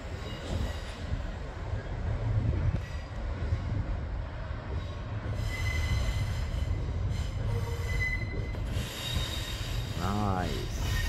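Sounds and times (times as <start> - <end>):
train rumbling: 0.0 - 11.0
high metallic squeal: 5.3 - 10.0.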